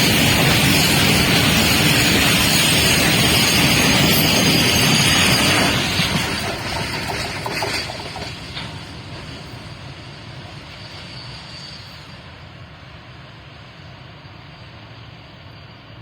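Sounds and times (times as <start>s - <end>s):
train rumbling past: 0.0s - 16.0s
wheel clicks over rail joints: 5.8s - 8.9s.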